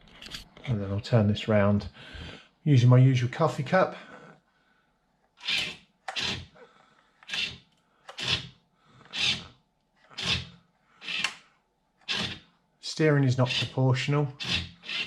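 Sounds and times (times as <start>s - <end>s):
toy truck steering whirr: 5.4s - 6.5s, 7.2s - 11.4s, 12.0s - 12.5s, 14.3s - 15.0s.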